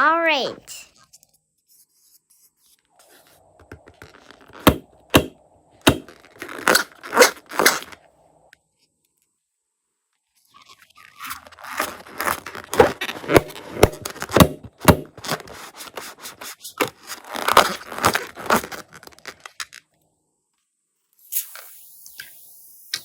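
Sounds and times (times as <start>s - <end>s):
slime crackling and squishing: 10.6s - 16.2s.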